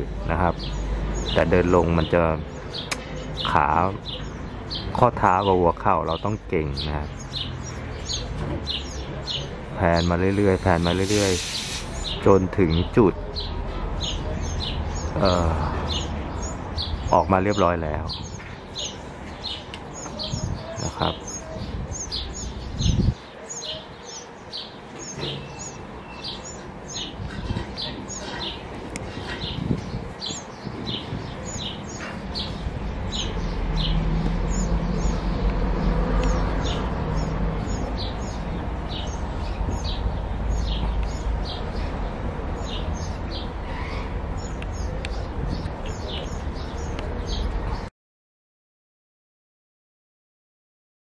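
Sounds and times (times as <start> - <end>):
background hiss: 10.4 - 12.2.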